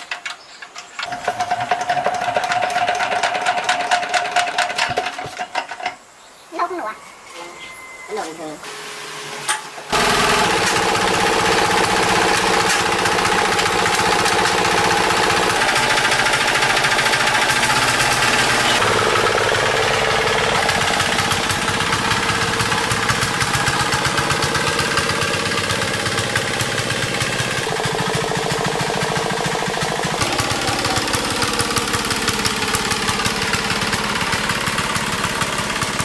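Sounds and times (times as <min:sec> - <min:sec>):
single-cylinder diesel engine knocking: 0:10.0 - 0:36.0.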